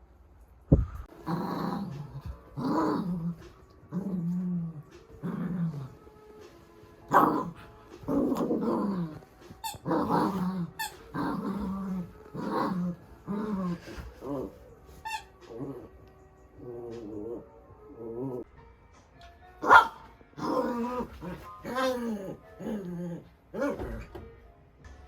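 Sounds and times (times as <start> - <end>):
small dog growling: 1.2 - 6.0, 7.1 - 9.2, 9.8 - 14.6.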